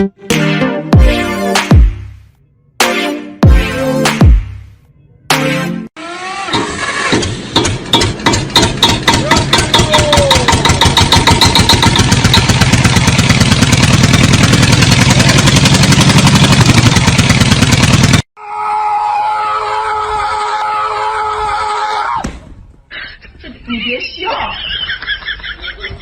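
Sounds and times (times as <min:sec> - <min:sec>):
engine pulsing: 0:06.0 - 0:18.3.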